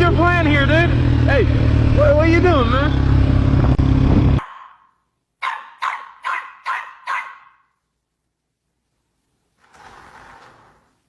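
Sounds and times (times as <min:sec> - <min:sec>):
dog barking: 0:04.4 - 0:07.7.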